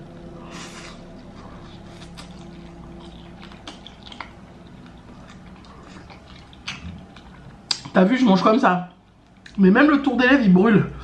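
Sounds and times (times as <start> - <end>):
person chewing food: 0.0 - 8.0, 8.9 - 9.6
faint steady hum: 0.0 - 11.0.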